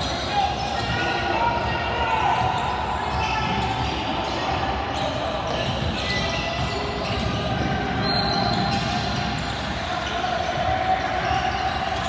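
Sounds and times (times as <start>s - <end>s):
background talk: 0.0s - 12.0s
basketball bouncing on court: 5.5s - 9.6s.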